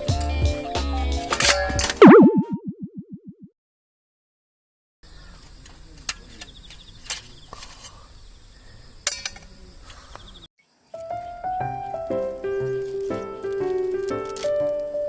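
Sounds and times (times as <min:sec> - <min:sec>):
sharp pops or clicks: 0:02.0 - 0:03.3.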